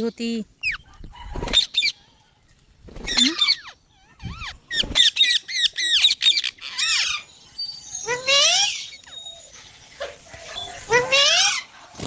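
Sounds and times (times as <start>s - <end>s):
parakeet squawking: 3.1s - 7.3s.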